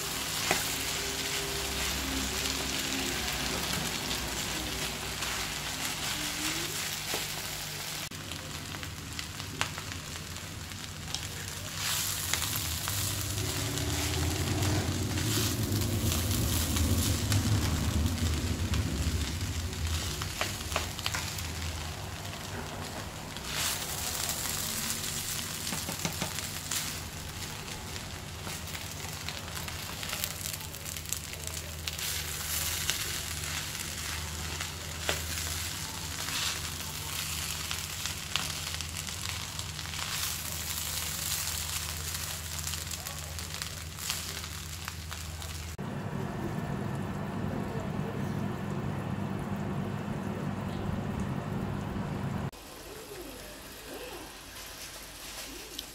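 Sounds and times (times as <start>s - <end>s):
rice sizzling in frying pan: 0.0s - 47.5s, 52.3s - 55.9s
low hum: 12.2s - 25.7s, 45.8s - 52.5s.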